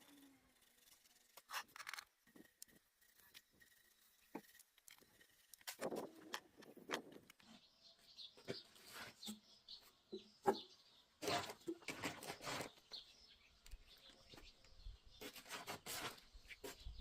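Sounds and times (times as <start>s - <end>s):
small birds chirping: 0.0s - 17.0s
rustling scraping noise: 8.4s - 9.4s, 11.2s - 13.0s, 15.2s - 17.0s.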